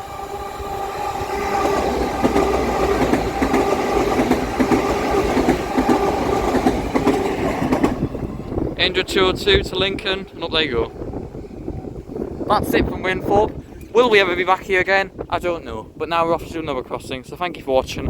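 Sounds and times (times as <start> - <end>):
train mechanical hum: 0.0 - 14.2.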